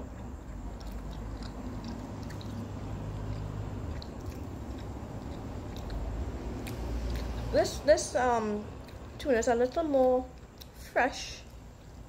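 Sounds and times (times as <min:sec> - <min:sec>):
person chewing with wet clicks: 0:00.0 - 0:12.0
steady low hum: 0:00.0 - 0:12.0.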